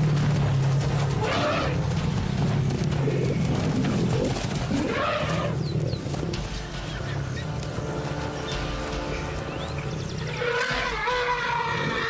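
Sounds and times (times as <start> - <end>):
elephants trumpeting: 1.0 - 1.9, 4.0 - 5.7, 10.0 - 12.0.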